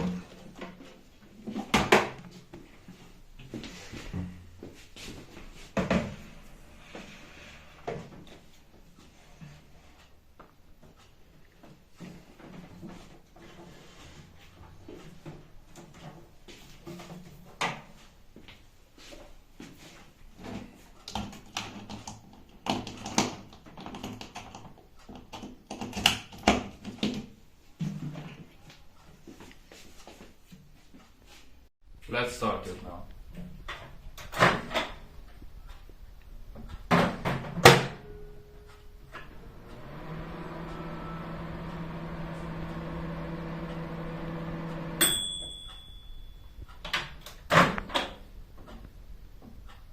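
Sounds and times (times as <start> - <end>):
timer bell ding: 38.0 - 39.0, 45.0 - 46.7
microwave oven humming: 38.1 - 46.4.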